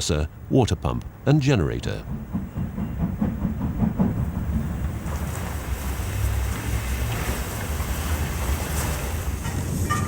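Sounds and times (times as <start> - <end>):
steam hissing: 4.6 - 10.0.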